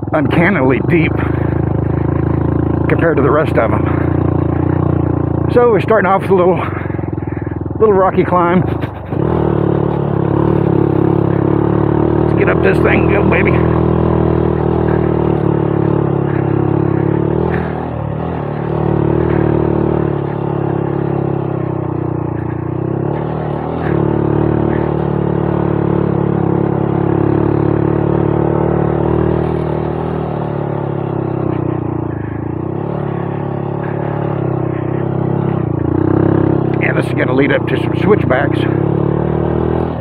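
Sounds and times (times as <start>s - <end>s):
motorcycle engine pulling under load: 0.2s - 40.0s.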